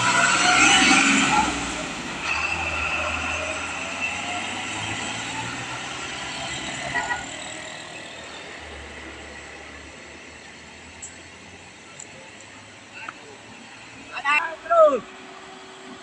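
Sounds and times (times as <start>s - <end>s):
heavy vehicle engine: 0.0s - 16.0s
road noise: 0.0s - 16.0s
faint clicks: 12.0s - 13.2s.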